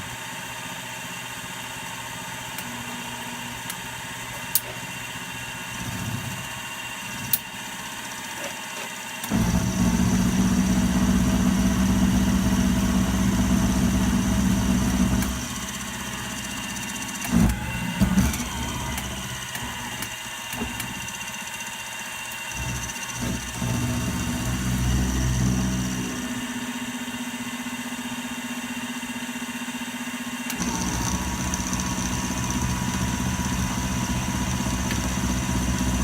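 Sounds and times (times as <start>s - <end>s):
electric motor humming: 5.5s - 7.5s, 9.2s - 21.6s, 22.5s - 26.6s, 30.5s - 36.0s.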